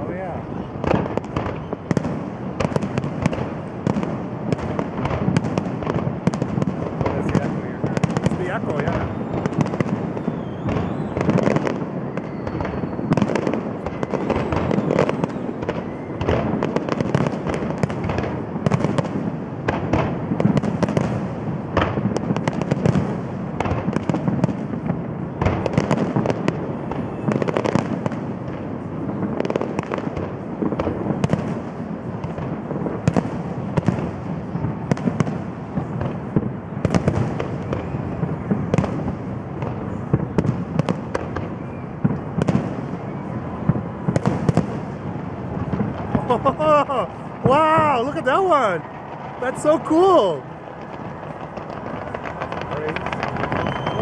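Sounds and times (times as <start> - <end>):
continuous rumble: 50.4 - 54.0.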